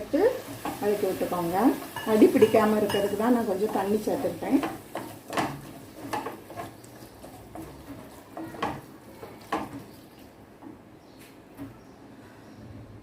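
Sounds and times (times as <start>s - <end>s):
utensil stirring in a pan: 0.0s - 10.8s
utensil clinking against a pan: 0.5s - 10.0s.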